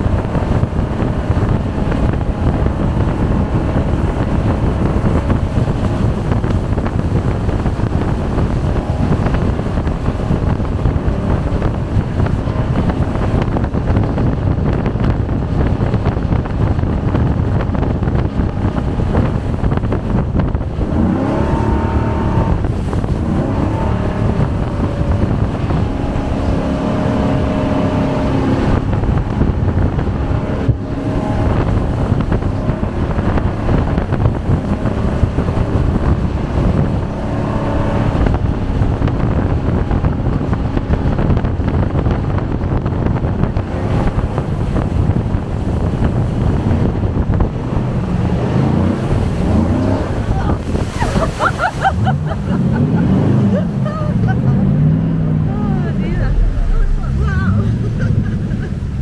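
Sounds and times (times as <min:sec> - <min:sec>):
jet boat engine rushing: 0:00.0 - 0:59.0
wind buffeting microphone: 0:00.0 - 0:59.0.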